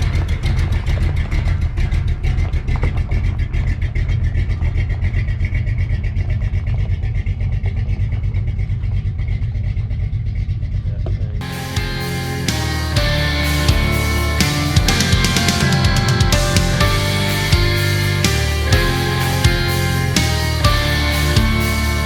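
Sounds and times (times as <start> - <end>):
truck engine running: 0.0 - 22.0
music: 11.4 - 22.0.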